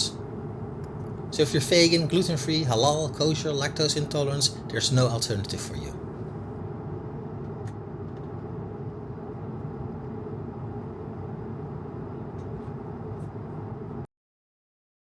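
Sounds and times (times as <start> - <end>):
airplane cabin engine rumble: 0.0 - 14.1.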